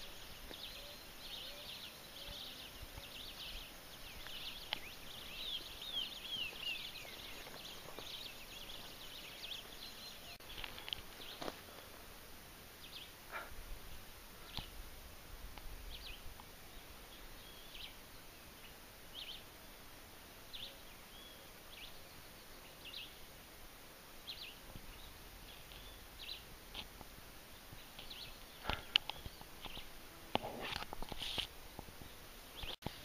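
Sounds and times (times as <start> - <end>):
bird chirping: 0.0 - 11.5, 20.5 - 23.2, 24.2 - 26.5, 27.5 - 33.0.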